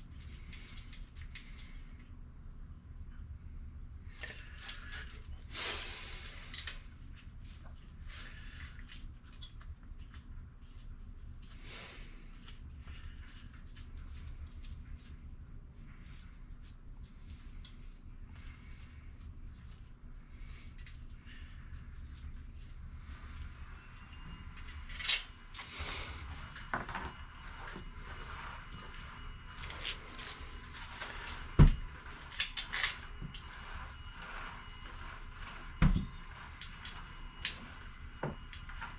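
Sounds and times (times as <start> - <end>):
steady low hum: 0.0 - 38.9
light metallic clicks and clinks: 26.9 - 27.3.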